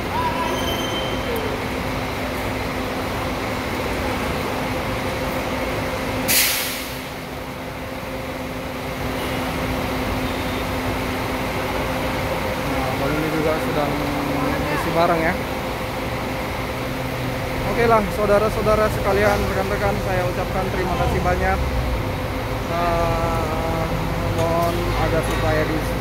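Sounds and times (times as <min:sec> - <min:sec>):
bus engine idling: 0:00.0 - 0:26.0
air brake hiss: 0:06.3 - 0:07.2.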